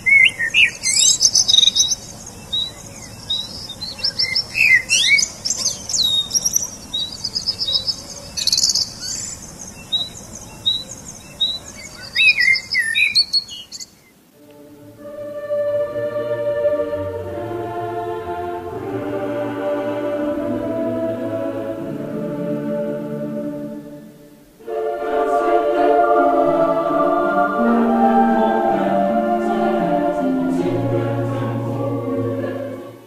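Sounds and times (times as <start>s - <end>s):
small birds chirping and twittering: 0.0s - 14.2s
choir music with held chords: 14.3s - 33.0s.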